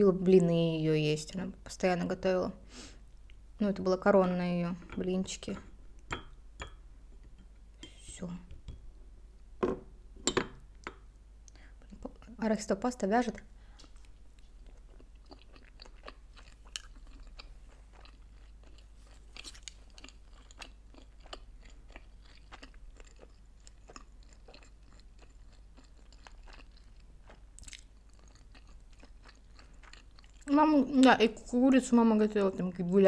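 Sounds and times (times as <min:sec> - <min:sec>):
person chewing food: 0:13.7 - 0:30.5.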